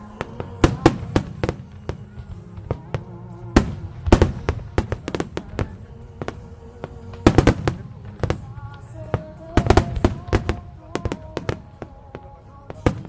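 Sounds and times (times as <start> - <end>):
firework shells bursting: 0.0 - 13.0
music playing: 0.0 - 13.0.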